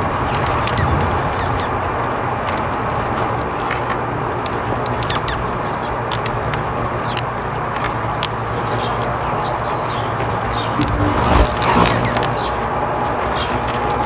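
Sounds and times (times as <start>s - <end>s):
small birds chirping: 4.9s - 12.6s.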